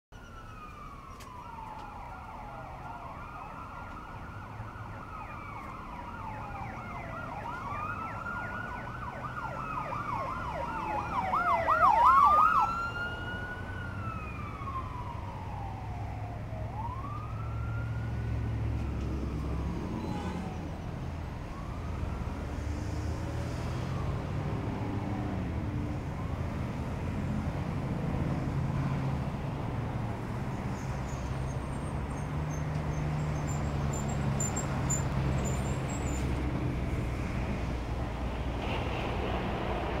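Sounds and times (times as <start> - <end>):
low traffic rumble: 0.1 - 40.0
emergency siren wailing and yelping: 0.2 - 27.0.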